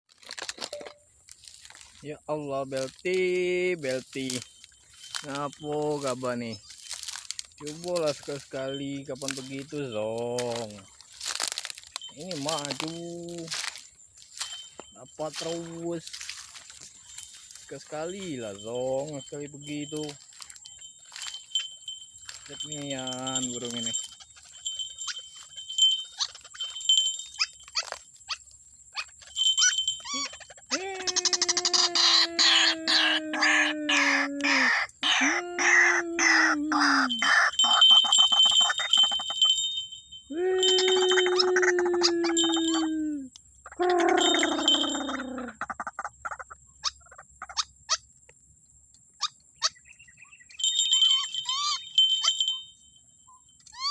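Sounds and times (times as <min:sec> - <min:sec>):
high-pitched ringing: 0:00.6 - 0:01.8, 0:02.4 - 0:28.2, 0:29.0 - 0:33.1, 0:36.8 - 0:45.7, 0:50.5 - 0:53.9
waterhen calling: 0:02.7 - 0:28.4, 0:29.0 - 0:39.8, 0:40.5 - 0:43.0, 0:43.6 - 0:48.0, 0:50.5 - 0:52.7
waterhen calls: 0:29.0 - 0:39.8, 0:40.6 - 0:42.9, 0:43.6 - 0:48.0, 0:50.6 - 0:52.6.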